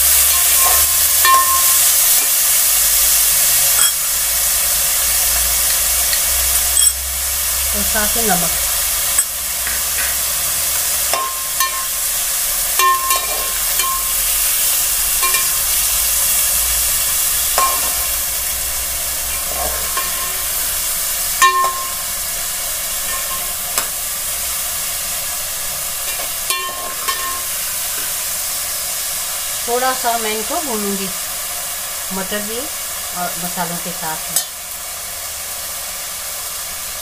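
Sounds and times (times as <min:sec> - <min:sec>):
vegetables sizzling in hot oil: 0:00.0 - 0:37.0
metal spoon clinking against pot: 0:00.3 - 0:01.8, 0:03.8 - 0:04.0, 0:06.1 - 0:07.0, 0:09.1 - 0:10.2, 0:11.1 - 0:11.9, 0:12.8 - 0:14.1, 0:15.2 - 0:15.6, 0:17.6 - 0:18.1, 0:21.4 - 0:22.0, 0:23.1 - 0:23.9, 0:26.1 - 0:27.5.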